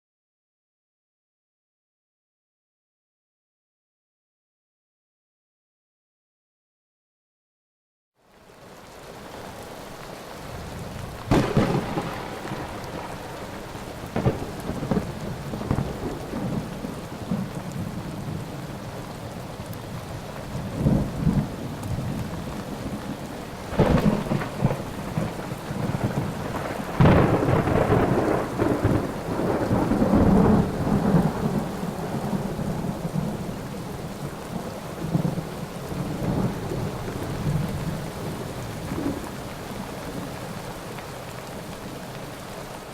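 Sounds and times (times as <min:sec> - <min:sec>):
heavy rain: 0:08.2 - 0:42.9
thunder claps and rumbling: 0:10.5 - 0:40.5.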